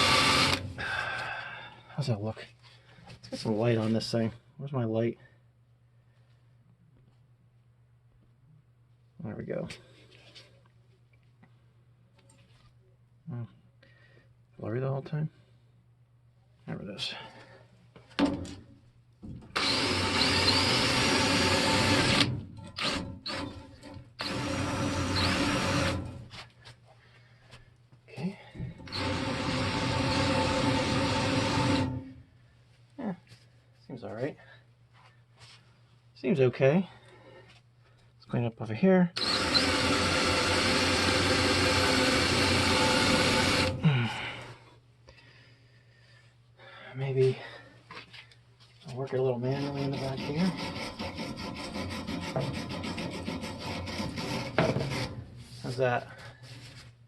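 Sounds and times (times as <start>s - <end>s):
wire wheel power tool whining: 0.0s - 0.7s, 19.5s - 26.2s, 28.8s - 32.1s, 39.2s - 44.0s
power tool wire wheel brushing: 49.5s - 55.7s.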